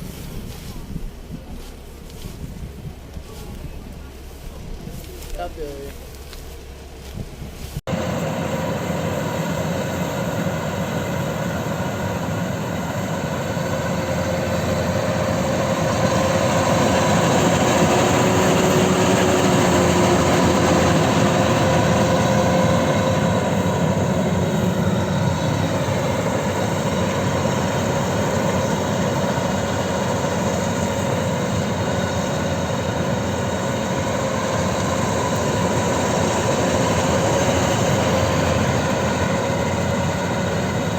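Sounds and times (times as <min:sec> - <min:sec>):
combine harvester running: 0:00.0 - 0:40.9.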